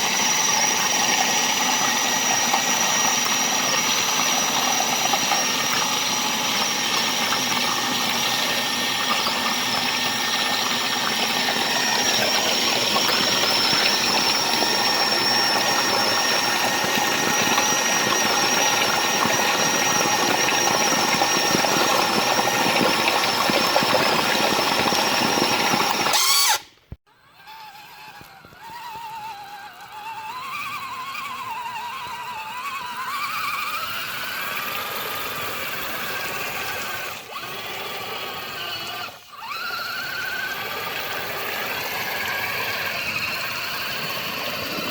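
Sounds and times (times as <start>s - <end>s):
quieter wavering whine: 0.0s - 26.6s
toy truck motor whining: 0.0s - 44.9s.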